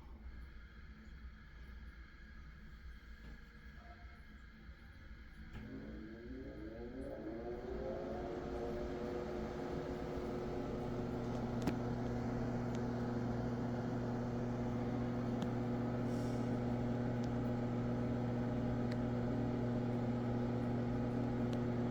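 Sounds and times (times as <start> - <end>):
exhaust fan running: 5.6 - 21.9.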